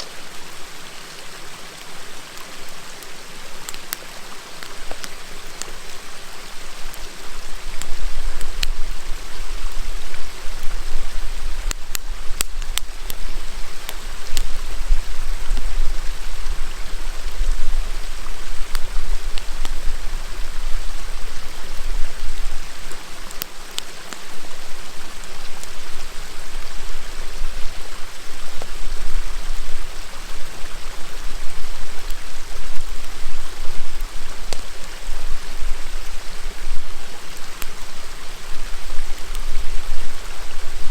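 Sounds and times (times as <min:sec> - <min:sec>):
river murmuring: 0:00.0 - 0:40.9
wood fire crackling and popping: 0:01.8 - 0:40.9.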